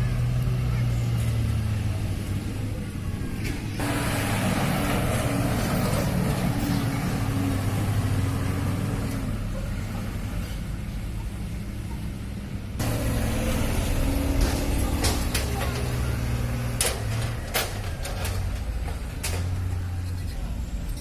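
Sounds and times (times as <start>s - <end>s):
truck engine humming: 0.0s - 21.0s
broad rushing noise: 1.6s - 9.4s.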